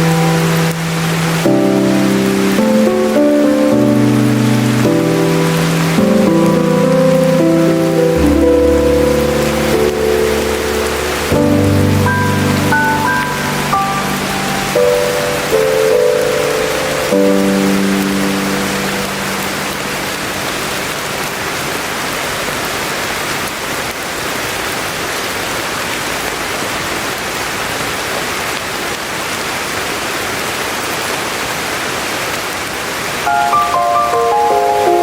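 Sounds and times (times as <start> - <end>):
melody: 0.0 - 21.6, 33.3 - 35.0
steady rain falling: 0.0 - 35.0.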